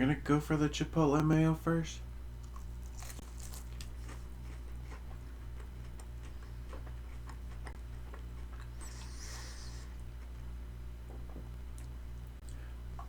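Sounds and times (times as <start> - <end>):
chewing crispy fried chicken: 2.3 - 10.5.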